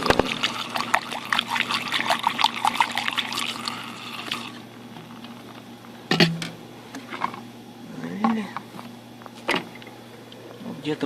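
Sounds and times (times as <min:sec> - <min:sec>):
liquid gurgling and splashing: 0:00.0 - 0:04.7.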